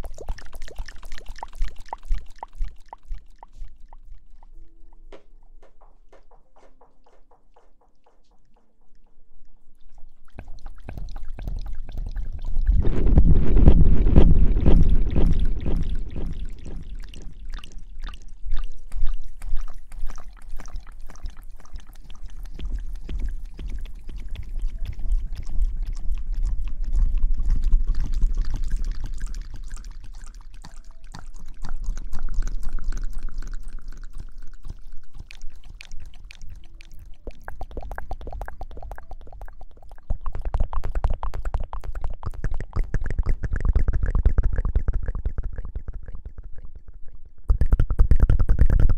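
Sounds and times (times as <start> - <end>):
wet hair lather squishing: 0.0 - 4.5, 9.8 - 12.9, 14.1 - 45.7.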